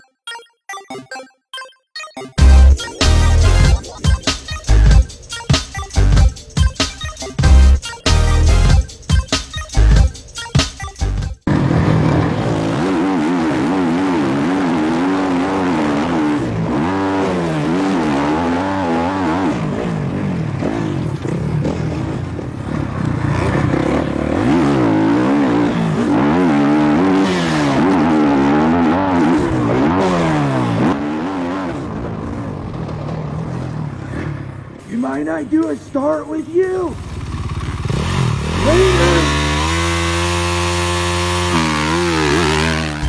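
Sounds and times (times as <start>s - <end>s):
dirt bike engines revving: 11.5s - 43.0s.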